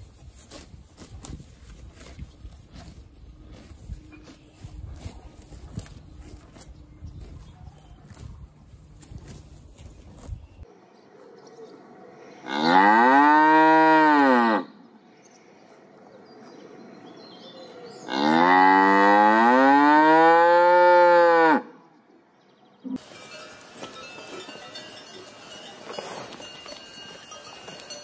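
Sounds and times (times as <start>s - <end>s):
cow mooing: 12.5s - 14.7s, 18.1s - 21.7s.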